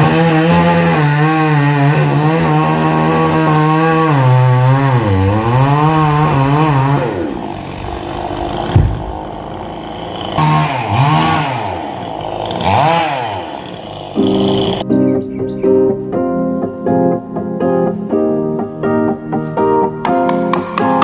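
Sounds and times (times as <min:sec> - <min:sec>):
chainsaw revving: 0:00.0 - 0:14.8
thud: 0:08.4 - 0:09.3.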